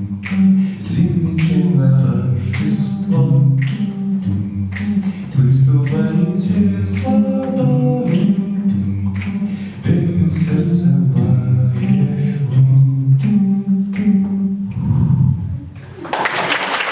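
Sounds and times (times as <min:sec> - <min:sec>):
two men singing in harmony: 0:00.0 - 0:15.6.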